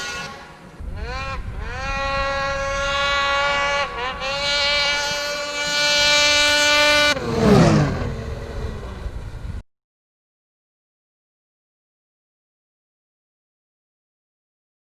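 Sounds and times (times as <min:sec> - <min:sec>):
snowmobile engine driving by: 0:00.0 - 0:09.6.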